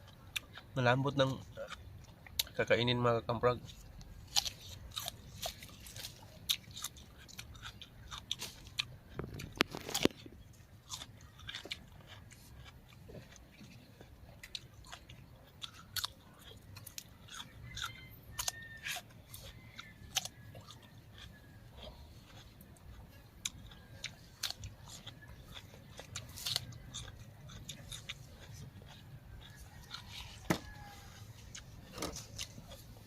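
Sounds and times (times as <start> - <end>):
chewing crunchy raw vegetables: 0.0 - 33.0.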